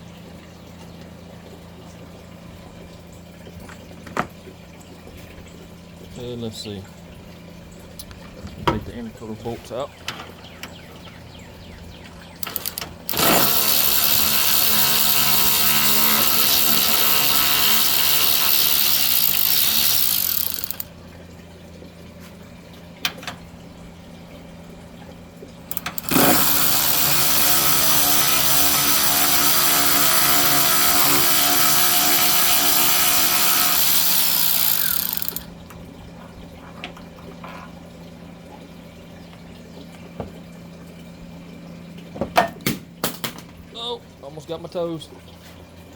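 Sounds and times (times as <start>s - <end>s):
cordless power tool running: 12.4s - 20.8s, 25.7s - 35.5s.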